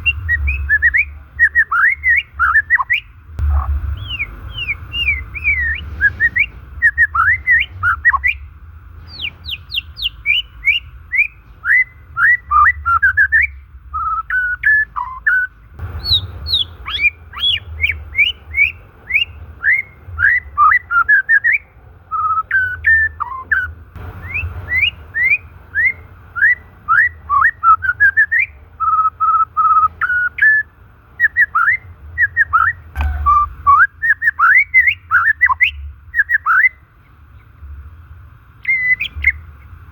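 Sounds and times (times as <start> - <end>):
low rumble: 0.0 - 28.9, 31.9 - 33.9
bird singing whistled notes: 0.0 - 37.6, 38.6 - 39.7.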